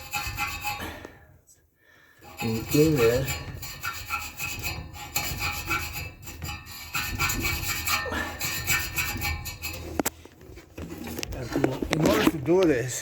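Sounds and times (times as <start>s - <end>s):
brush scrubbing blower wheel: 0.0s - 0.8s, 2.2s - 10.0s.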